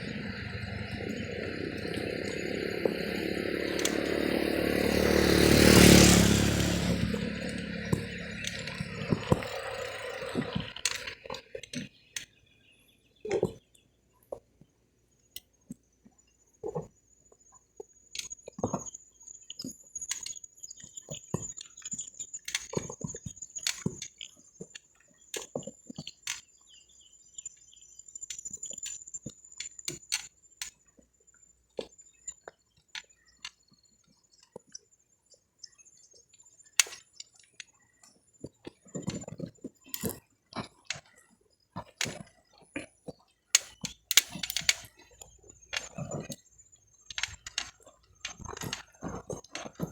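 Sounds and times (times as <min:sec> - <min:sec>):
high-pitched whine: 0:00.0 - 0:11.0.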